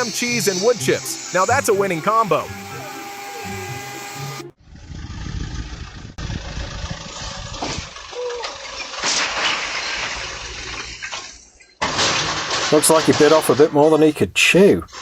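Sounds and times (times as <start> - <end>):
machine engine running: 0.0 - 8.2.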